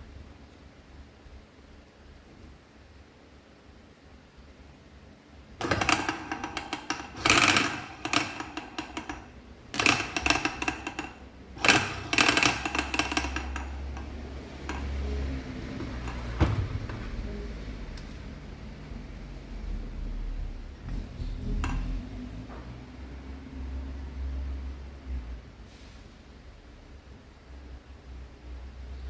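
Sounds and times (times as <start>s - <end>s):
metallic clicking and rattling: 5.6s - 16.5s.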